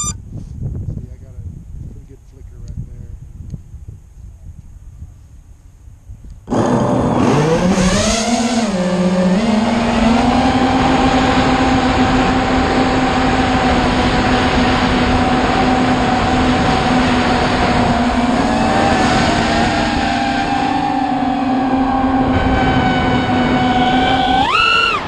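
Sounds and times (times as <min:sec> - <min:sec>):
motor spinning up: 0:23.2 - 0:25.0.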